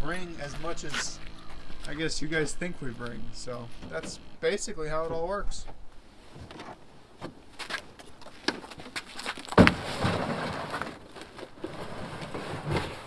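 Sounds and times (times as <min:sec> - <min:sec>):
sled scraping: 0:00.0 - 0:13.0
heavy sled thump: 0:09.5 - 0:13.0.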